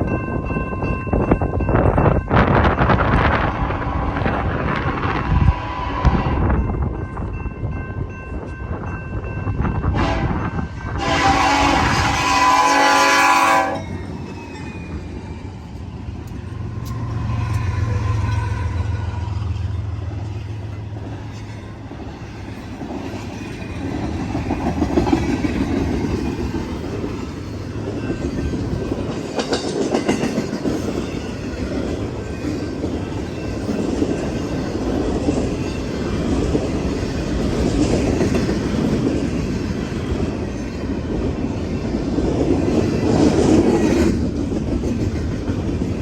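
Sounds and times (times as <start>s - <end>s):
diesel locomotives rumbling: 0.0s - 46.0s
freight train rail clatter: 0.0s - 46.0s
locomotive horn: 3.3s - 6.6s, 9.9s - 13.9s.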